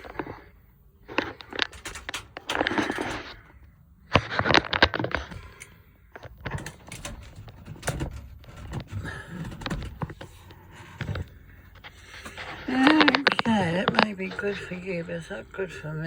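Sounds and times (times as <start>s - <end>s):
objects being handled rustling: 0.0s - 15.2s
sharp clicks and knocks: 1.1s - 3.4s, 4.1s - 10.3s.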